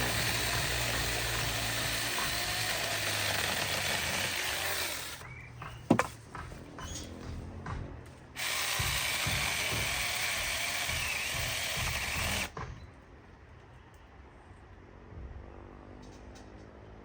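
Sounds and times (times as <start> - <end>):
power tool rasping: 0.0 - 5.2, 5.9 - 6.2, 8.4 - 12.5.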